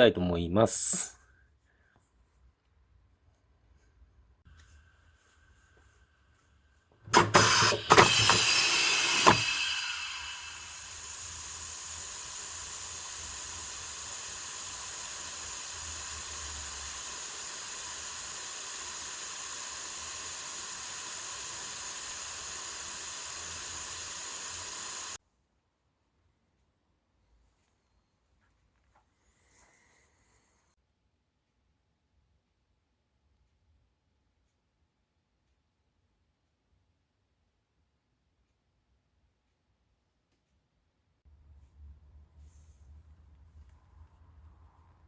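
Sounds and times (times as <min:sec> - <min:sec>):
compressed air hissing: 0:07.1 - 0:25.2.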